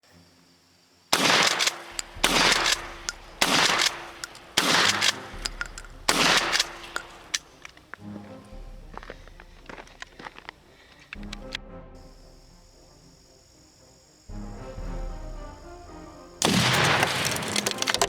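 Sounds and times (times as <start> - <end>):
gunshots: 1.2 - 7.8, 16.4 - 18.0
small sharp clicks: 1.2 - 8.0, 9.9 - 11.6.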